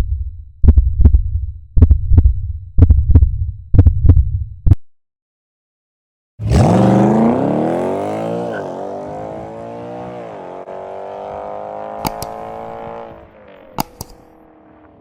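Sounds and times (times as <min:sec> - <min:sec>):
car engine accelerating: 0:06.4 - 0:15.0
sharp clicks: 0:12.0 - 0:12.4, 0:13.7 - 0:14.3.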